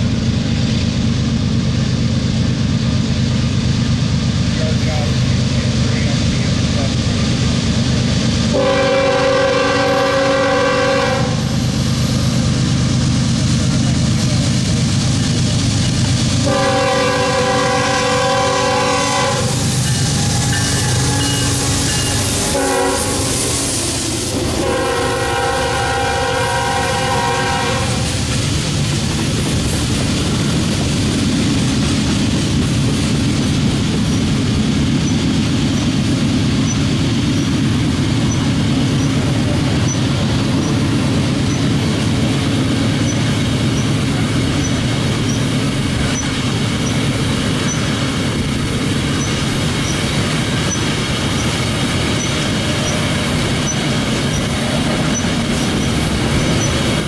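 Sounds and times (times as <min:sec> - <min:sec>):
freight train rumbling: 0:00.0 - 0:57.0
train air horn blasts: 0:08.5 - 0:11.8, 0:16.4 - 0:28.2
wheels clacking over rail joints: 0:10.4 - 0:57.0.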